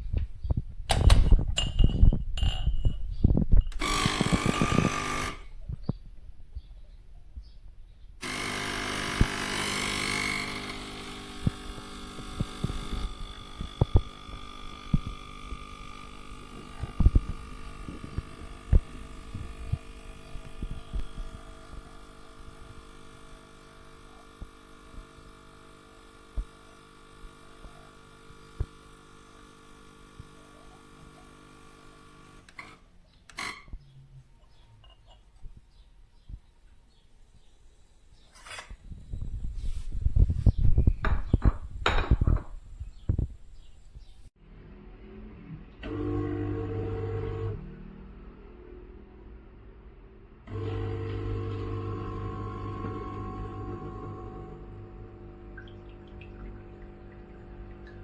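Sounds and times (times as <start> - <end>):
espresso machine pump humming: 3.8 - 5.5, 8.2 - 32.8, 45.9 - 47.6, 50.5 - 58.0.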